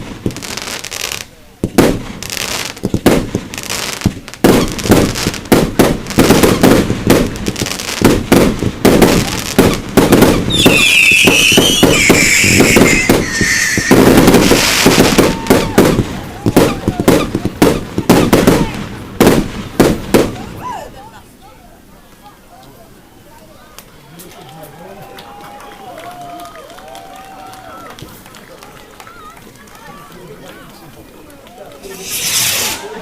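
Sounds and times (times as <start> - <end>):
fireworks whistling: 0.0 - 20.4, 31.8 - 33.0
fireworks crackle: 0.0 - 20.6, 30.6 - 33.0
fireworks shells bursting: 2.8 - 16.0, 31.8 - 33.0.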